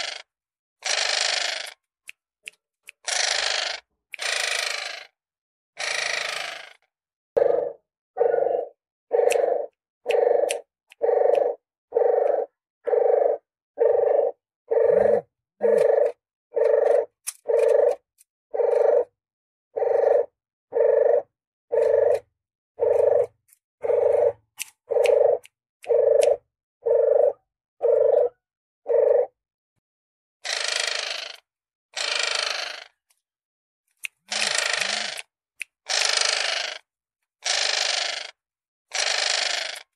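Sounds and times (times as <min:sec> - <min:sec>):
dove cooing call: 0:07.4 - 0:18.0, 0:18.6 - 0:19.1, 0:19.8 - 0:29.4.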